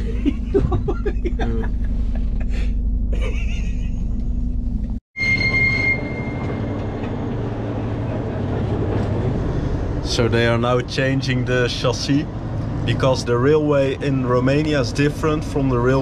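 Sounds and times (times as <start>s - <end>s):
low hum: 0.0s - 16.0s
low rumble of stationary train: 0.0s - 16.0s
high metallic squeal: 5.2s - 7.3s.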